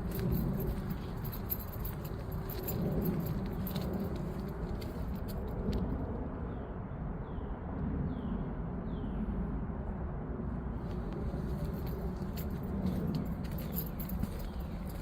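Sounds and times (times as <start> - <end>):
light jingling clicks: 0.0 - 6.0, 11.1 - 15.0
low outdoor rumble: 0.0 - 15.0.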